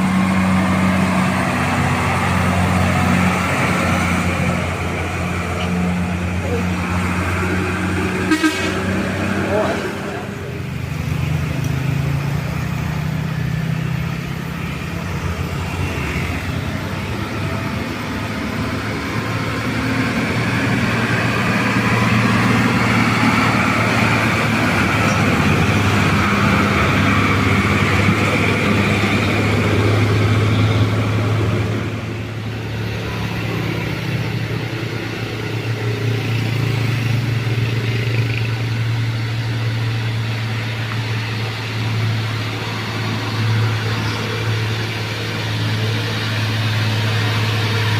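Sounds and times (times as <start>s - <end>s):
diesel truck engines labouring: 0.0s - 47.9s.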